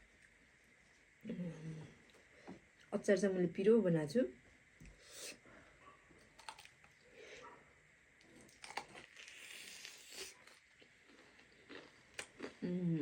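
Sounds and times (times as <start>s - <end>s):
chewing and crunching: 6.2s - 7.1s, 8.2s - 12.7s.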